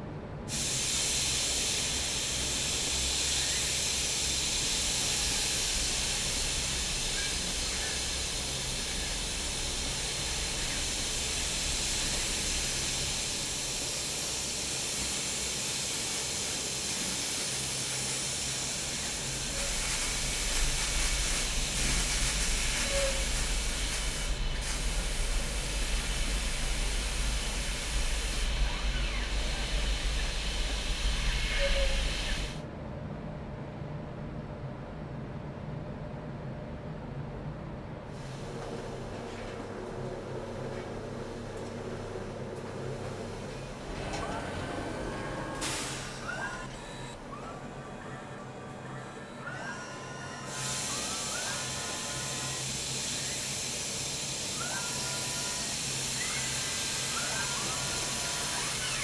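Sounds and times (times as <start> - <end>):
machinery hissing: 0.5 - 32.6, 41.1 - 59.0.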